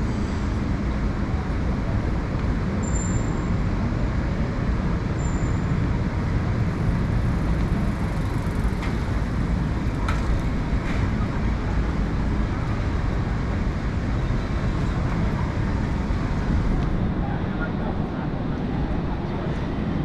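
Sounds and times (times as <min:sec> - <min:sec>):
low rumble of traffic: 0:00.0 - 0:20.0.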